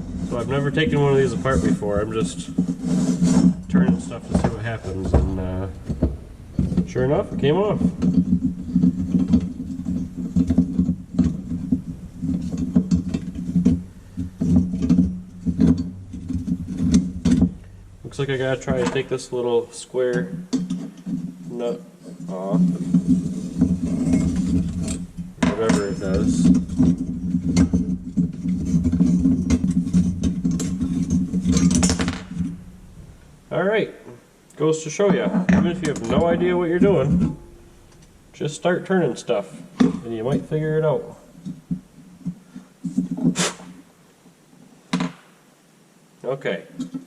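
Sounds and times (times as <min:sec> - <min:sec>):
low hum: 0:00.0 - 0:21.6, 0:22.3 - 0:34.5, 0:35.5 - 0:42.0
metal parts clicking and rattling: 0:01.0 - 0:19.2, 0:20.1 - 0:33.4.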